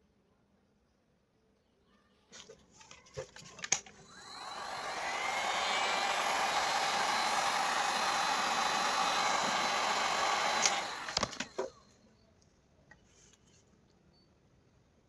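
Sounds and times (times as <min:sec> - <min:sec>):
small electric motor whirring: 0:04.0 - 0:11.8.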